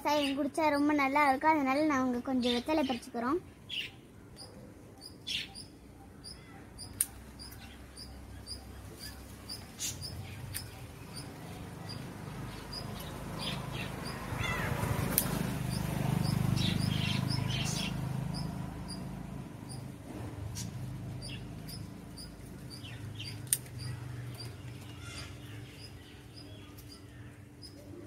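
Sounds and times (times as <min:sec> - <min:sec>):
small bird chirping: 0:00.0 - 0:28.0
scissors snipping stems: 0:06.8 - 0:07.6, 0:15.0 - 0:15.4, 0:23.3 - 0:24.9.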